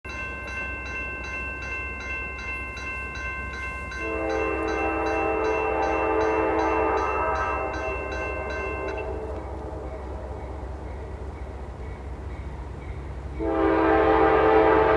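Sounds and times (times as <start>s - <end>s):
railroad crossing bell ringing: 0.0s - 14.9s
passing train rumble: 0.1s - 14.9s
locomotive air horn: 4.0s - 10.2s, 13.4s - 14.9s.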